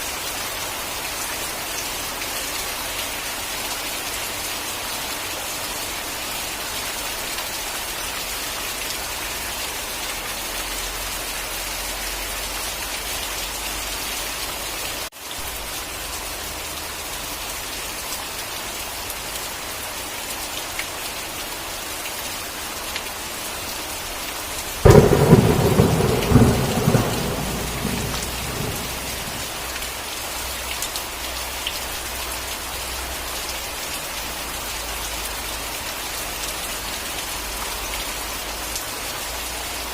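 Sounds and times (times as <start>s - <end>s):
steady rain: 0.0s - 39.9s
thunderclap and rumble: 24.8s - 29.8s.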